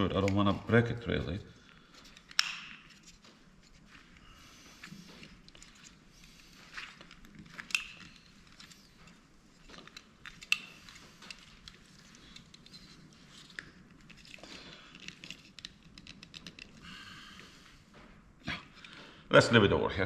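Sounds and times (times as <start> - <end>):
plastic parts clicking and rattling: 1.7 - 4.1, 4.8 - 17.0.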